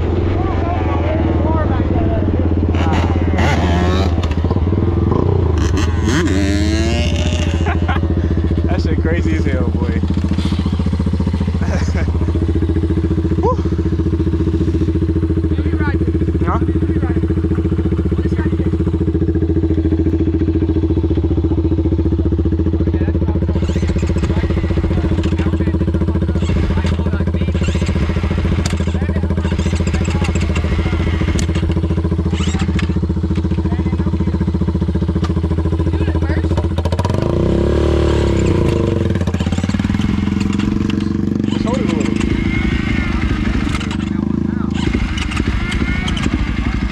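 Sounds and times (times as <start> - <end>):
dirt bike engine running: 0.0 - 46.9.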